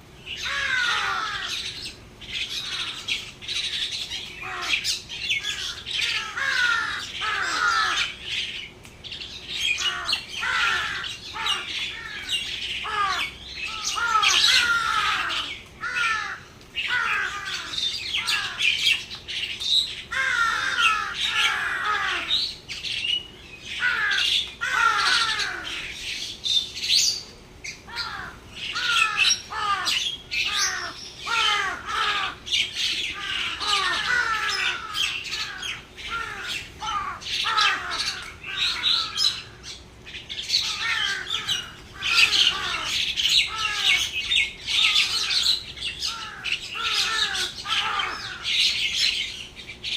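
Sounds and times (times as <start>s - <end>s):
flock of birds squawking: 0.0s - 49.9s.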